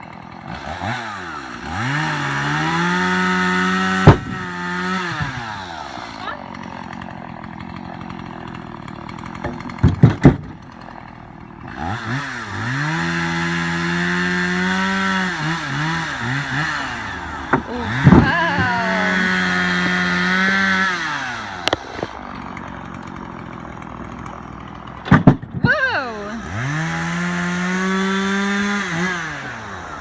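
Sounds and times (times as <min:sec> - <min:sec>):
chainsaw idling and revving: 0:00.0 - 0:30.0
sharp knocks: 0:04.0 - 0:04.5, 0:09.4 - 0:10.6, 0:25.0 - 0:25.7.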